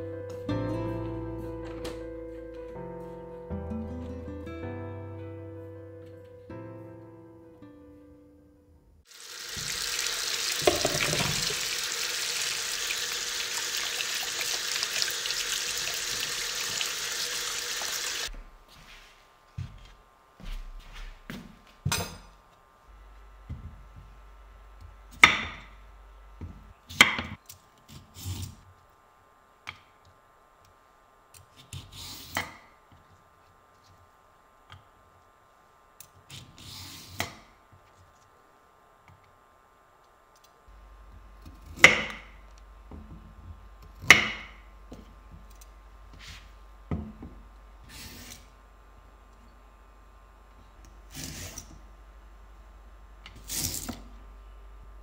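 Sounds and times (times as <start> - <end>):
objects knocking and clunking: 10.6 - 11.7.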